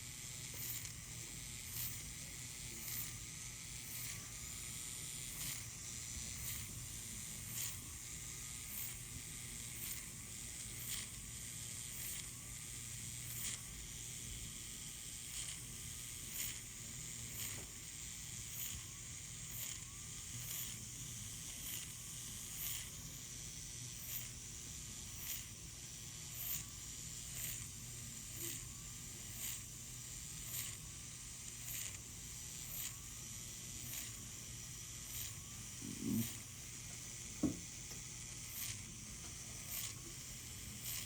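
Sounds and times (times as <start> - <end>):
short high-pitched whirr: 0.0 - 14.0, 14.8 - 41.0
surgical equipment hiss and hum: 23.9 - 41.0.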